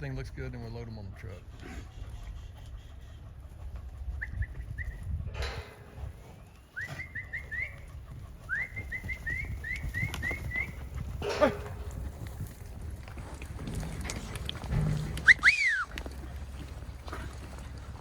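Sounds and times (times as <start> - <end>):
metallic clatter: 5.3 - 6.2, 13.6 - 15.7
bird whistling rising notes: 15.2 - 15.9.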